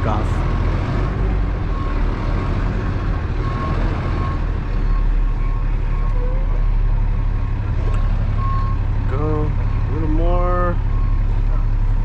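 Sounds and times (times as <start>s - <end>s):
truck engine running: 0.0s - 12.0s
reversing alarm beeps: 3.4s - 6.6s, 8.4s - 8.8s, 9.6s - 11.3s.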